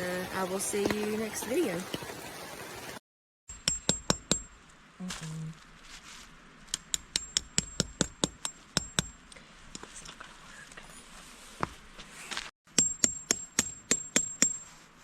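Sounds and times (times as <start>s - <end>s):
hammer striking metal stake: 3.5s - 4.6s, 6.7s - 9.2s, 12.7s - 14.7s.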